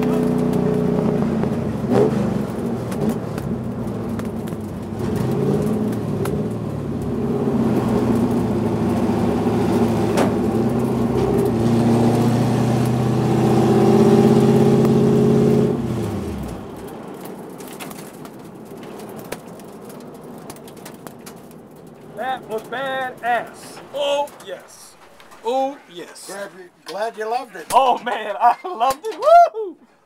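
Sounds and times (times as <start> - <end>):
race car engine running: 0.0 - 24.0.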